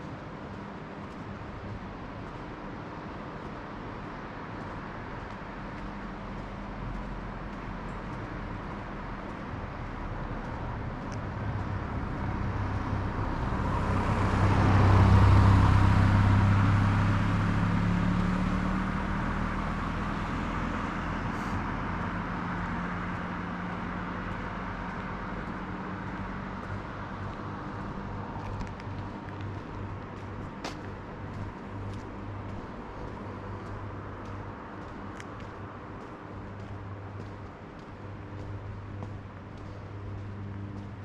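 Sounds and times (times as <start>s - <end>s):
vehicle driving past: 8.5s - 33.8s.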